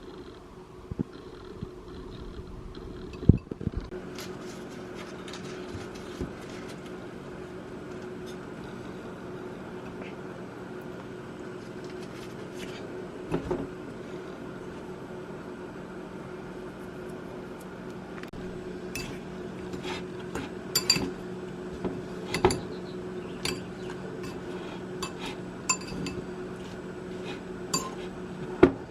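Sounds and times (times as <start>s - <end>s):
kitchen appliance humming: 1.0s - 28.9s.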